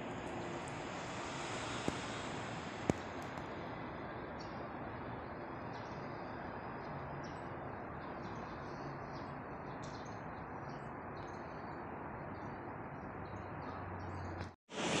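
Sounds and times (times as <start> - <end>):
low street hum: 0.0 - 15.0
small birds chirping: 5.3 - 14.5.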